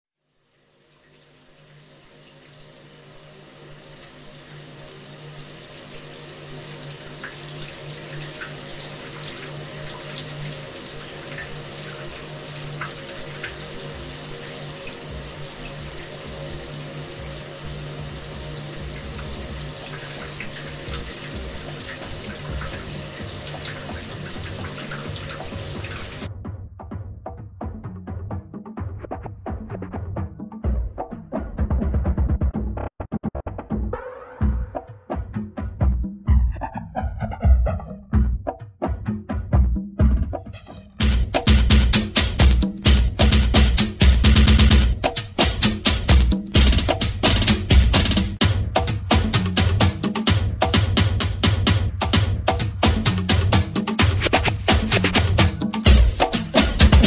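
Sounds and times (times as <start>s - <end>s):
shower water running: 0.2s - 26.3s, 41.0s - 57.0s.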